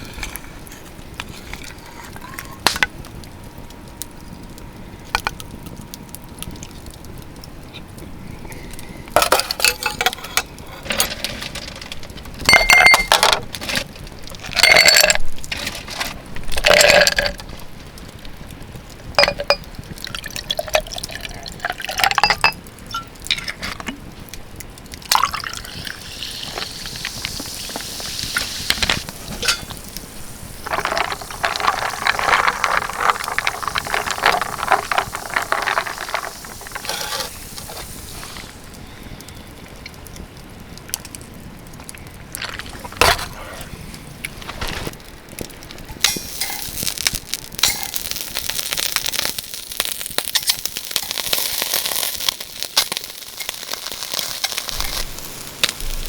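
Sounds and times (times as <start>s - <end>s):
tableware clinking: 12.5s - 13.4s, 19.2s - 19.6s, 22.1s - 23.6s, 29.3s - 29.8s
liquid pouring into container: 19.2s - 22.4s, 25.1s - 28.4s, 30.6s - 37.8s.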